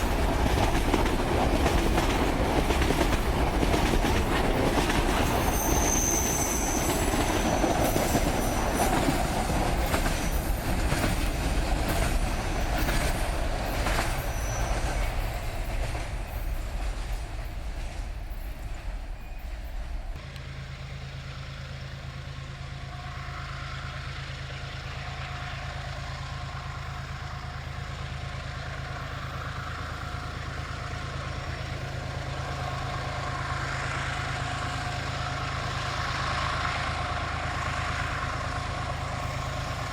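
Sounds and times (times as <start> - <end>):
train wheels clattering on rails: 0.0 - 20.4
low engine hum: 0.0 - 39.9
high wheel squeal: 4.9 - 20.2.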